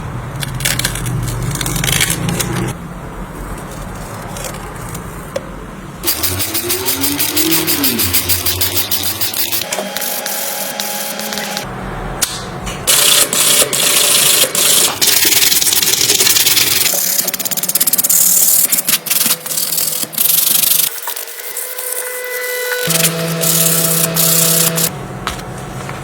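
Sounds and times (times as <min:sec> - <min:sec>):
abrasive rubbing on hard part: 0:06.2 - 0:11.6.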